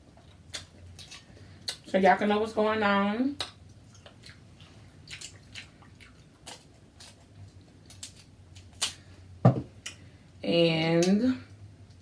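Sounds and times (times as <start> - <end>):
wet chewing: 0.2 - 1.8, 3.4 - 9.0.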